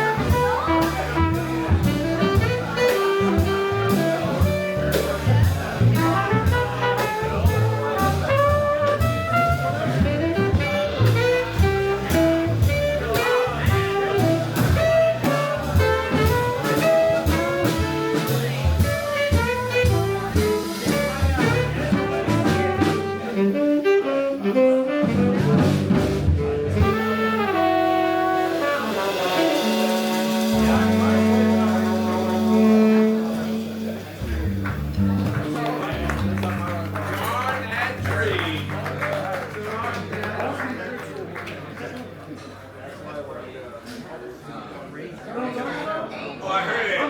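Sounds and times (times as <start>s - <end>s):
horn line: 0.0s - 39.6s
double bass: 0.0s - 40.4s
jazz band playing: 0.0s - 42.8s.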